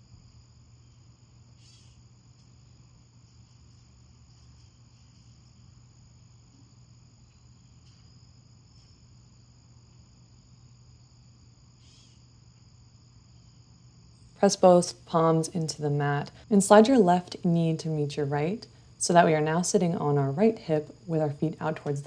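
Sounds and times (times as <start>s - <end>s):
crickets chirring: 0.0s - 22.0s
low steady hum: 12.3s - 22.0s.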